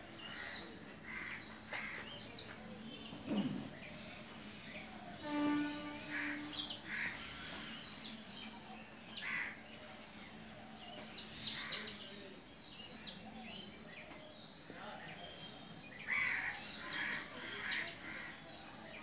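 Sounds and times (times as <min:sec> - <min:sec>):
birds chirping: 0:00.0 - 0:19.0
harsh bird calls: 0:03.1 - 0:08.4.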